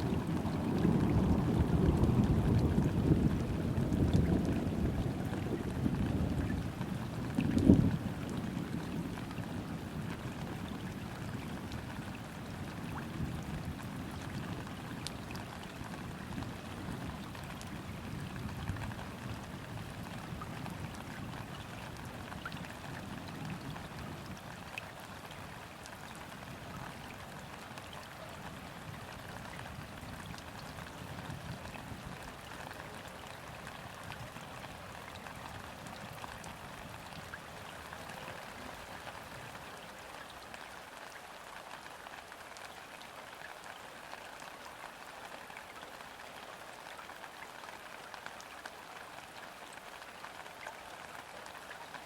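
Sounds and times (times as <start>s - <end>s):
distant thunder rumble: 0.0s - 8.0s
rain on water: 0.0s - 52.0s.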